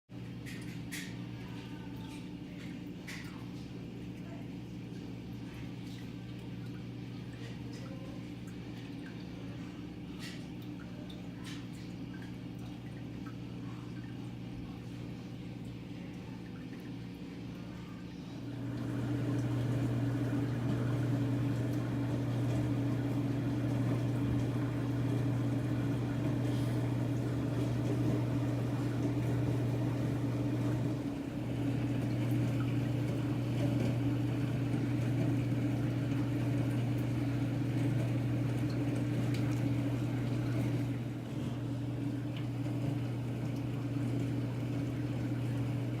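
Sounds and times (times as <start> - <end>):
aquarium filter humming: 0.1 - 46.0
water moving: 18.5 - 46.0.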